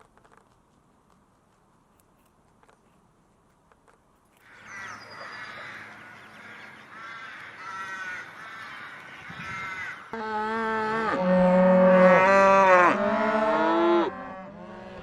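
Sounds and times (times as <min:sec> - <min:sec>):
bird harsh calls: 0:04.4 - 0:10.2.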